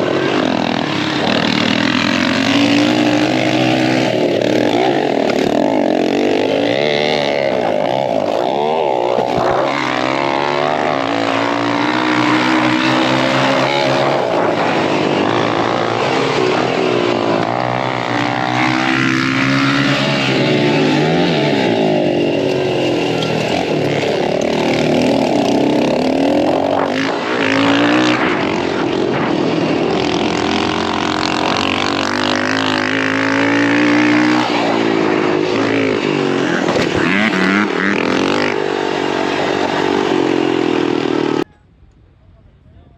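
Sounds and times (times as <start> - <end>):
dirt bike engine revving: 0.0 - 41.5.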